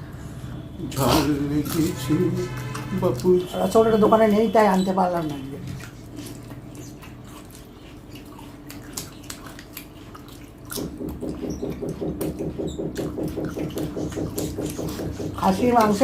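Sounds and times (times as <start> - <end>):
mouth clicks and chewing: 1.0 - 4.5, 5.2 - 16.0
quick rhythmic pulsing: 10.7 - 16.0.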